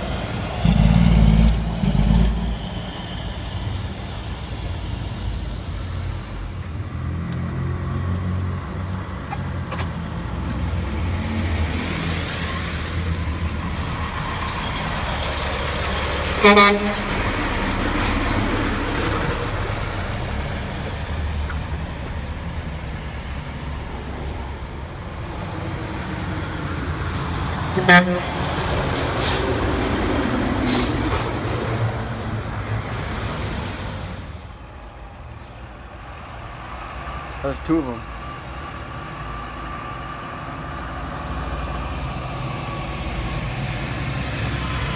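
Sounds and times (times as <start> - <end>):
truck engines rumbling: 0.0 - 44.9
truck horn blasts: 16.4 - 17.7, 27.7 - 28.8.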